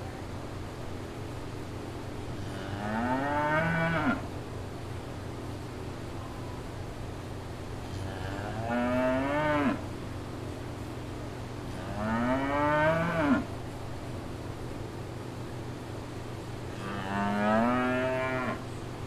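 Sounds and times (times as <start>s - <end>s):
steady low hum: 0.0s - 19.0s
cow mooing: 2.5s - 4.2s, 8.1s - 9.8s, 11.8s - 13.5s, 16.8s - 18.6s.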